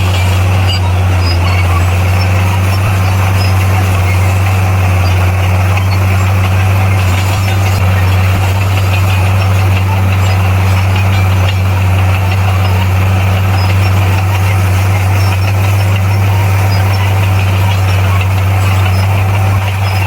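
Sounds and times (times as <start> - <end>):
heavy machinery diesel engine: 0.0 - 20.0.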